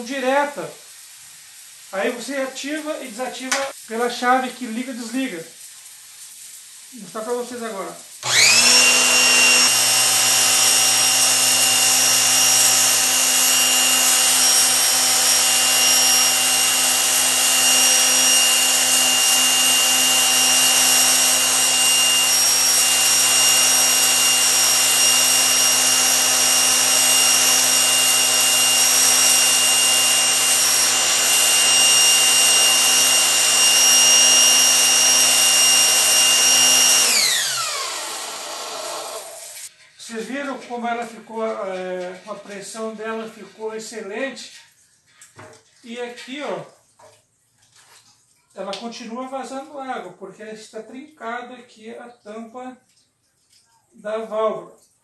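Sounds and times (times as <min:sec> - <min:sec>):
pressure washer motor whining: 0:08.2 - 0:39.7.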